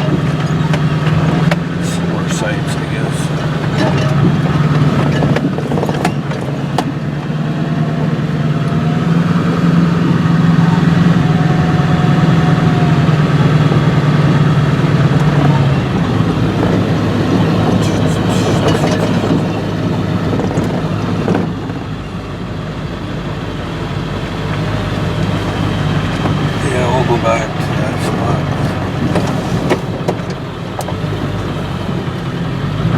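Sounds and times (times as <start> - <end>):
vehicle engine and road noise: 0.0 - 32.9.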